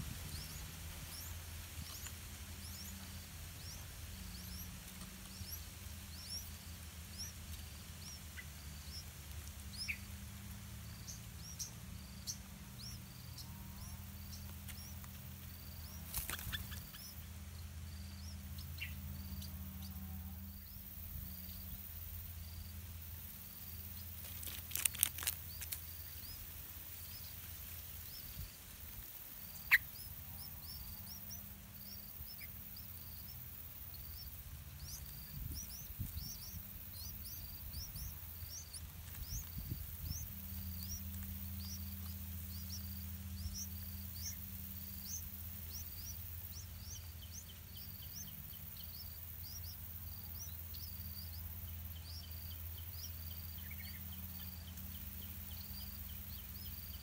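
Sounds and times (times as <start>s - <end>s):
small bird chirping: 0.0s - 57.0s
steady low hum: 0.0s - 57.0s
rustling: 24.0s - 26.0s.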